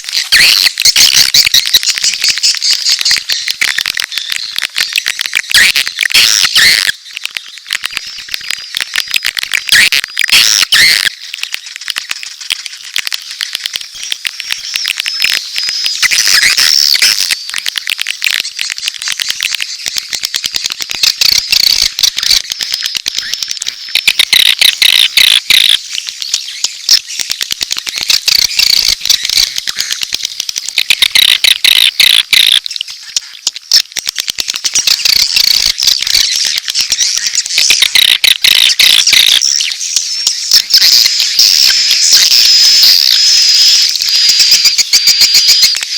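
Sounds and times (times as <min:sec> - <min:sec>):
swiftlet colony twittering: 0:00.0 - 0:33.8.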